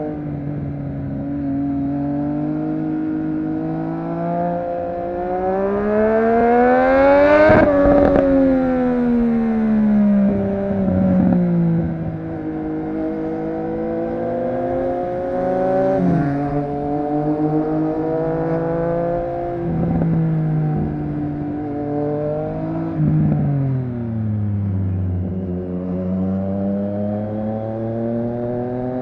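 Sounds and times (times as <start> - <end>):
motorcycle engine under way: 0.0 - 29.0.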